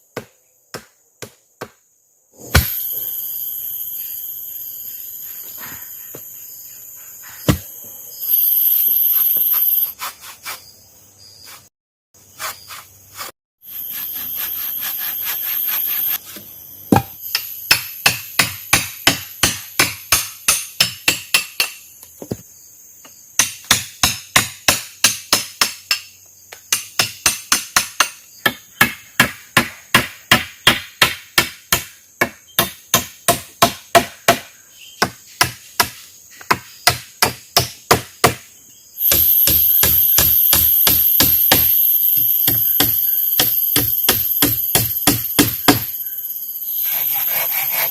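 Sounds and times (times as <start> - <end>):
tool striking wood: 0.2 - 1.8, 7.4 - 7.7, 16.9 - 22.4, 39.0 - 46.0
high insect drone: 1.2 - 10.0, 13.6 - 29.0, 31.4 - 47.9.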